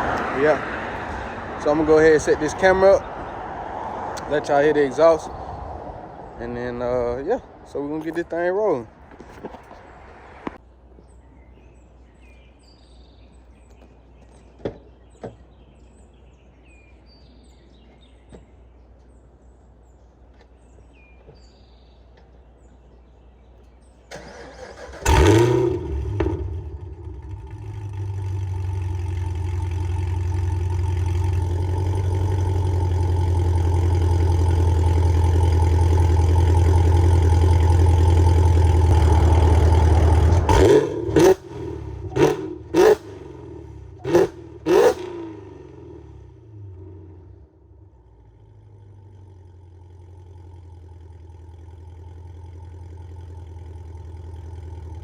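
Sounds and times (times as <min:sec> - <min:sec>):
car engine starting and idling: 0:00.0 - 0:10.6, 0:23.6 - 0:55.0.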